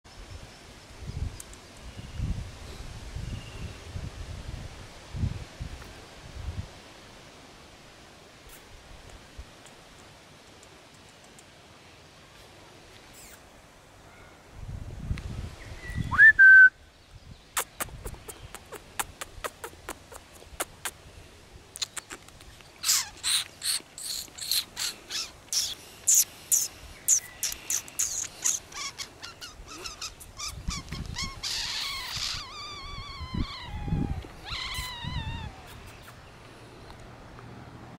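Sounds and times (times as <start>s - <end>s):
bird rising whistle: 15.8s - 16.8s
bird sharp clicks: 17.6s - 21.0s, 21.8s - 28.6s
descending stepped bird calls: 21.8s - 36.3s
loud repeated bird calls: 22.8s - 36.3s.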